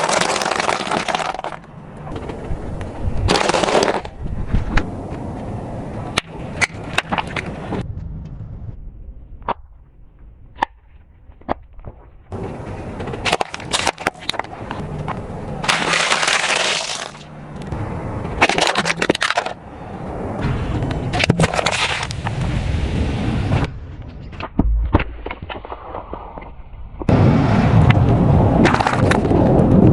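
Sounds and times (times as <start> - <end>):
tyre crushing brittle objects: 0.0 - 1.6, 15.6 - 17.3.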